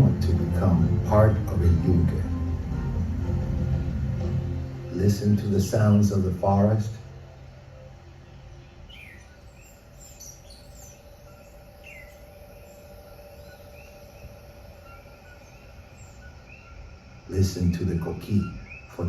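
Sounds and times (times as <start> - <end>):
birds calling: 0.0 - 19.0
steady background hum: 0.0 - 19.0
chorus of repeated high calls: 8.8 - 17.4.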